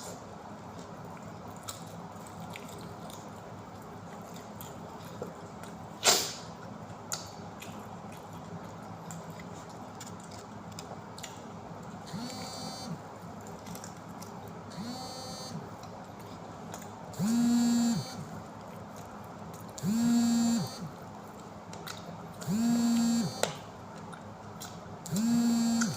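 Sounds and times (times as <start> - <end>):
person chewing food: 0.0 - 14.8, 15.5 - 25.9.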